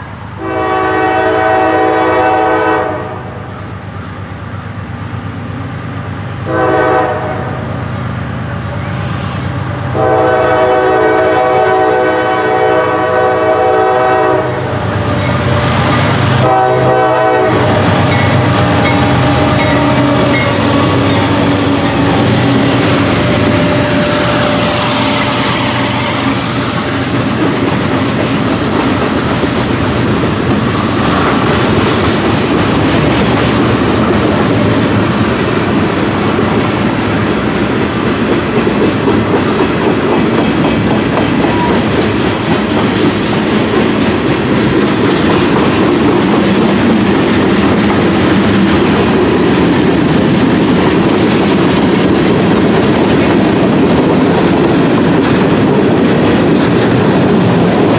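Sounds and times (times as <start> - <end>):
train horn: 0.4 - 3.5, 6.4 - 7.8, 8.8 - 26.6, 41.4 - 41.9
locomotive engine rumble: 7.5 - 57.9
wheels clacking on rails: 9.7 - 57.9.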